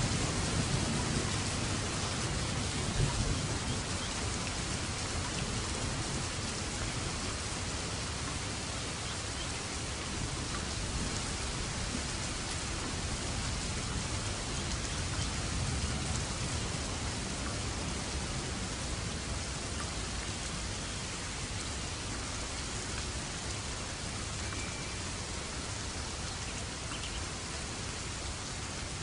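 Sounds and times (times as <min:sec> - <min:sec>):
distant thunder rumble: 0:00.0 - 0:07.3, 0:10.3 - 0:19.4
heavy rain hissing: 0:00.0 - 0:29.0.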